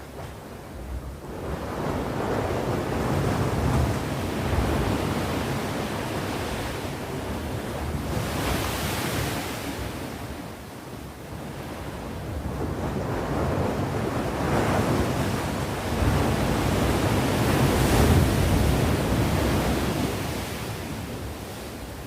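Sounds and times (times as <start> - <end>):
sea waves breaking on shore: 0.0 - 10.6, 11.3 - 22.0
wind on microphone: 11.2 - 22.0.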